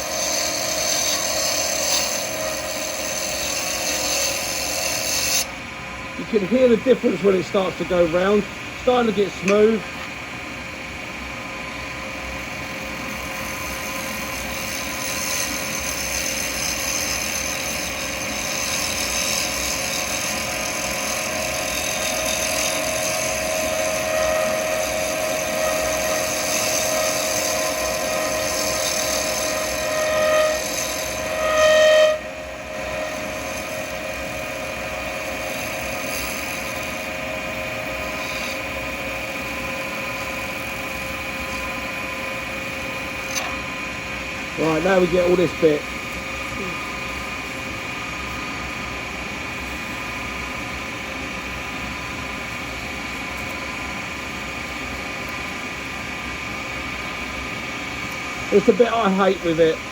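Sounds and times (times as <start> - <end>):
chisel scraping spinning blank: 0.0 - 5.5, 13.2 - 42.1
wood lathe whine: 0.0 - 59.9.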